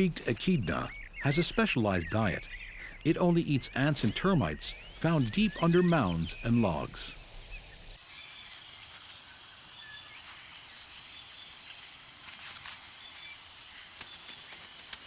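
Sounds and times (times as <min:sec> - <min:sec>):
insect chorus: 0:00.0 - 0:15.0
faint ticks and rustles: 0:07.1 - 0:15.0.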